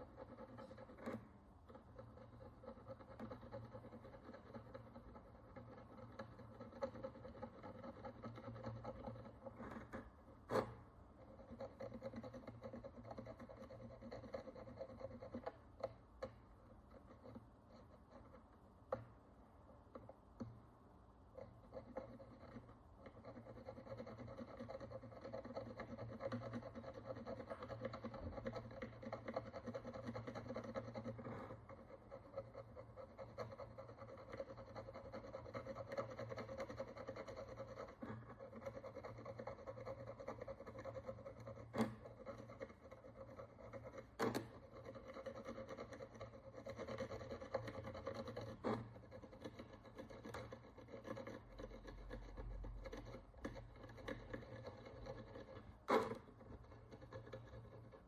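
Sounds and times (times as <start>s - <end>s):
hand tool scraping a coin: 21.5s - 58.0s.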